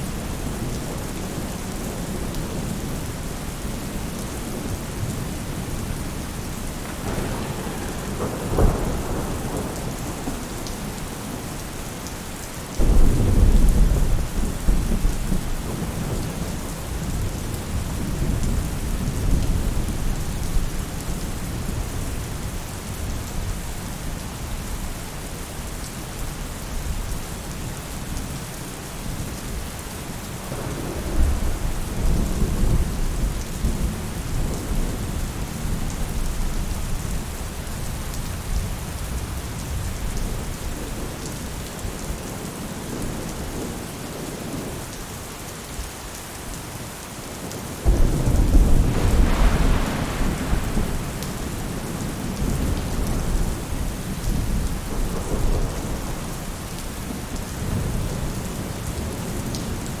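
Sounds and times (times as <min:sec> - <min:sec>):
rain falling on a roof: 0:00.0 - 1:00.0
thunder rumbling: 0:04.4 - 0:12.1, 0:12.8 - 0:20.7, 0:30.5 - 0:36.7, 0:47.8 - 0:58.4.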